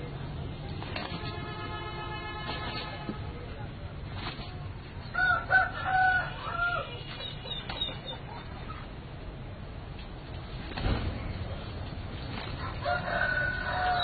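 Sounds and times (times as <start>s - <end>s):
rooster crowing: 5.2s - 7.0s, 12.6s - 14.0s.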